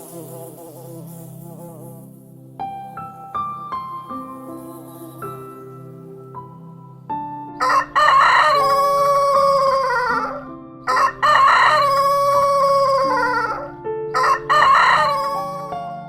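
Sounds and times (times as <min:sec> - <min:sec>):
soft piano music: 0:00.0 - 0:16.0
rooster crowing: 0:07.6 - 0:15.9.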